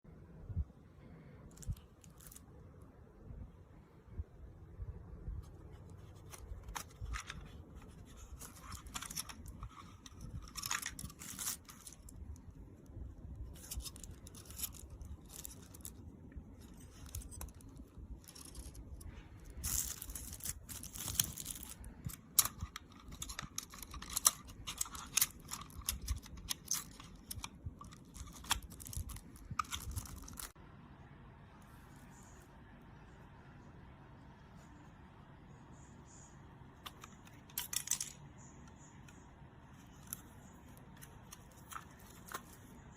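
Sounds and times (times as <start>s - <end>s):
packaging crinkling and tearing: 5.8s - 12.6s, 13.4s - 30.6s.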